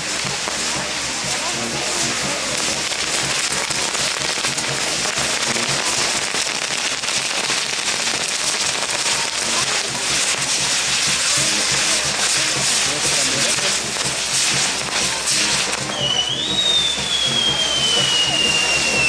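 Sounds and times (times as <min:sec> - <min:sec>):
fireworks crackling: 0:00.0 - 0:19.0.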